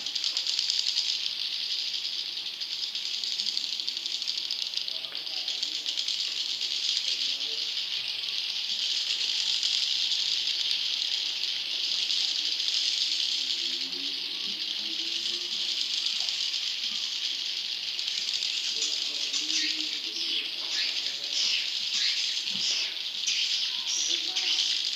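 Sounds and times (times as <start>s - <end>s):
swiftlets chattering: 14.7s - 24.9s.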